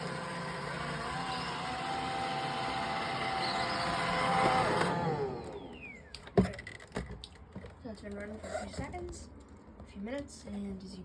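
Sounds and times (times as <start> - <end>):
motors spinning down: 0.0 - 6.1
robot vacuum motor whine: 0.0 - 6.1.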